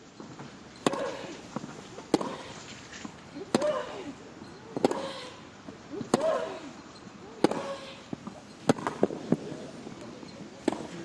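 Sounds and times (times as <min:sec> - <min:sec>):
tennis balls bouncing: 0:00.2 - 0:09.4, 0:10.6 - 0:11.0
tennis rackets hitting balls: 0:00.3 - 0:09.4, 0:10.6 - 0:11.0
tennis player grunting: 0:00.8 - 0:01.4, 0:03.4 - 0:04.2, 0:04.8 - 0:08.1.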